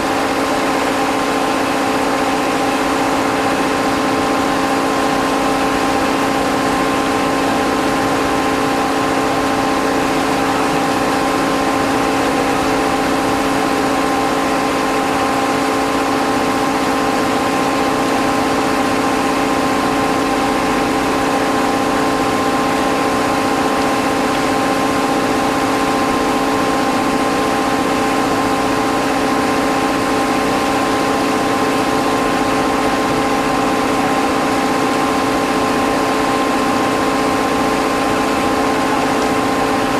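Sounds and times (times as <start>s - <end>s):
heavy electric machinery humming: 0.0s - 39.9s.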